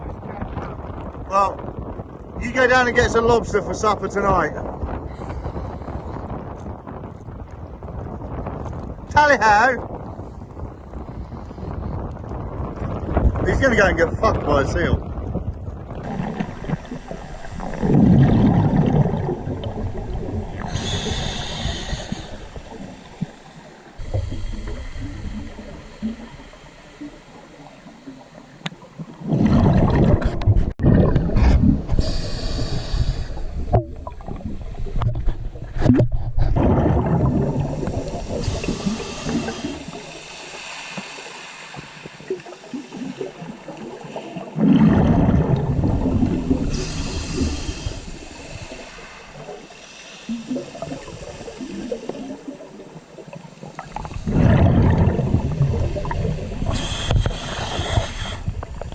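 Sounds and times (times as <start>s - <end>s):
sea water surging and gurgling: 0.0s - 58.9s
steady hiss: 20.0s - 28.9s, 37.8s - 44.1s, 46.6s - 52.6s, 56.0s - 58.9s.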